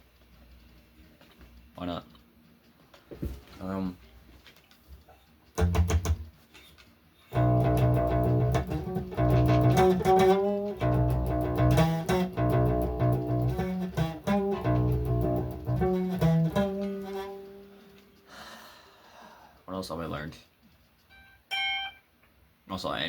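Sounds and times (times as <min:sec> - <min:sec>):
guitar fast chord picking: 0:07.4 - 0:17.8.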